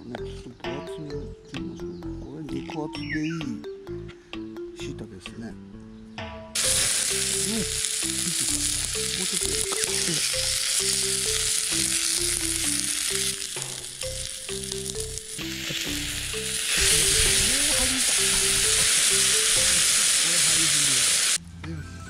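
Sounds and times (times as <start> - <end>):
vegetables sizzling in oil: 6.6 - 21.4.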